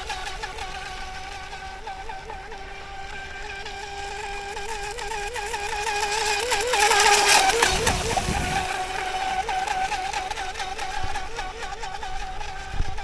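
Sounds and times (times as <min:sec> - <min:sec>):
electric motor whining: 0:00.0 - 0:13.0
rush of noise with low rumble: 0:07.7 - 0:09.0.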